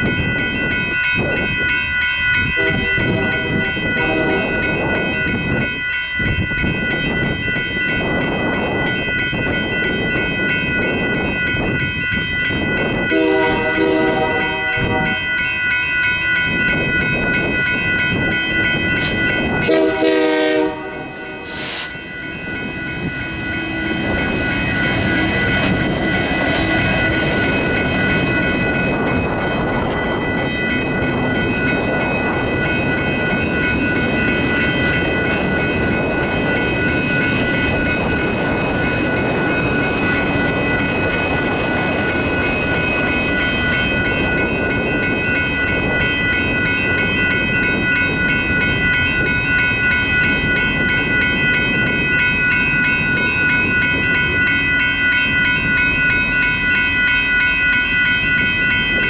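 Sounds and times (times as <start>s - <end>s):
crossing bells ringing: 0.0s - 59.0s
train wheels rumbling on rails: 0.0s - 59.0s.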